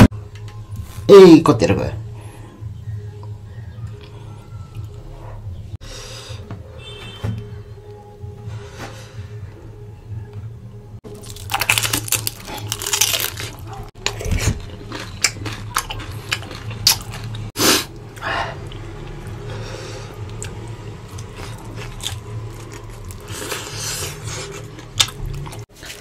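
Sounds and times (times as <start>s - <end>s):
crisp crunching of spring rolls: 11.0s - 17.6s, 20.3s - 26.0s
soft chewing: 11.2s - 26.0s.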